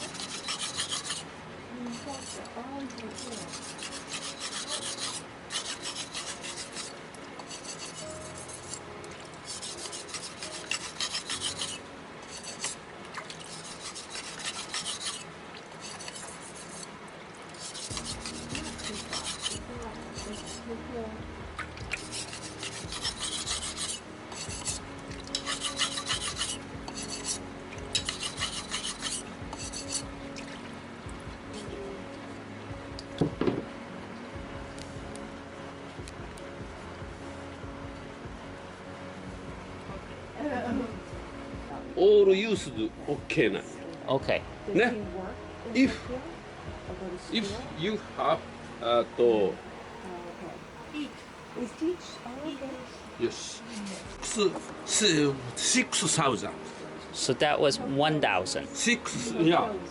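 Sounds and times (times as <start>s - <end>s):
knife scraping on whetstone: 0.0s - 12.8s, 13.4s - 16.9s, 17.6s - 20.7s, 21.9s - 30.1s.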